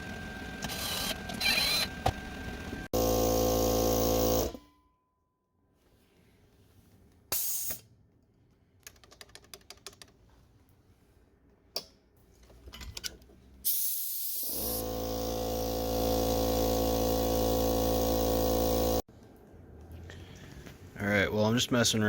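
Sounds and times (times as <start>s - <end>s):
air compressor running: 0.0s - 4.6s, 14.1s - 19.1s.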